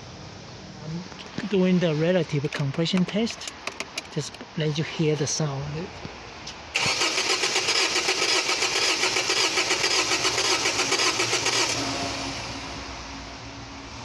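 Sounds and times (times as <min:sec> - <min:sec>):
car engine cranking: 0:03.4 - 0:04.4, 0:06.8 - 0:12.6.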